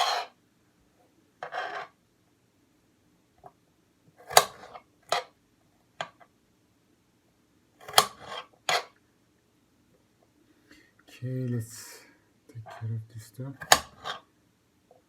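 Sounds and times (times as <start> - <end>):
knife striking a cutting board: 4.2 - 4.8, 7.8 - 8.4, 13.6 - 14.2.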